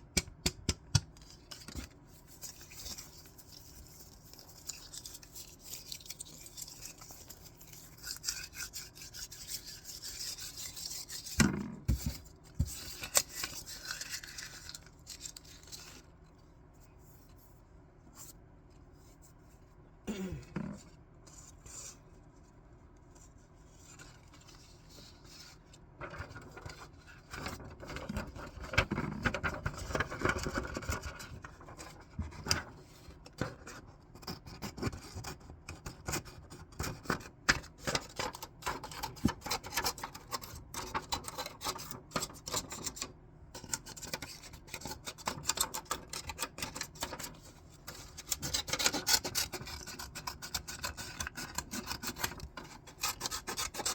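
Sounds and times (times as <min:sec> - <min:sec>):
scissors cutting paper: 0:47.9 - 0:53.9.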